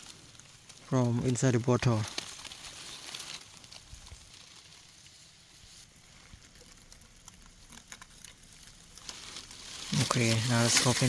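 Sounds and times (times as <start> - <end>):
small ticks: 6.1 - 9.4.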